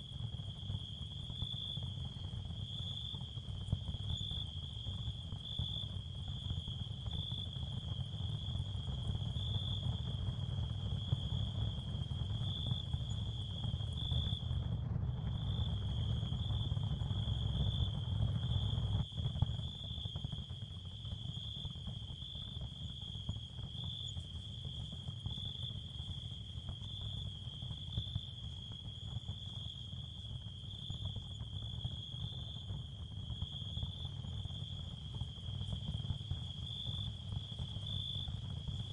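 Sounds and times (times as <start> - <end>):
high cricket-like chirring: 15.3 - 38.9.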